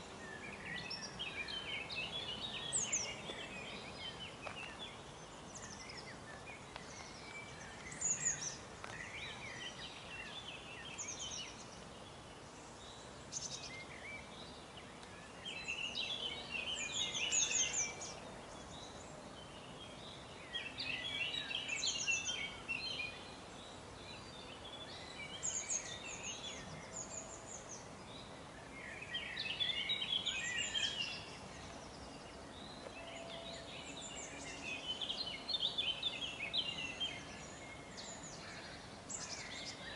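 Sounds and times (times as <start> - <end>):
faint environmental background noise: 0.0 - 39.9
songbirds chirping: 0.0 - 39.9.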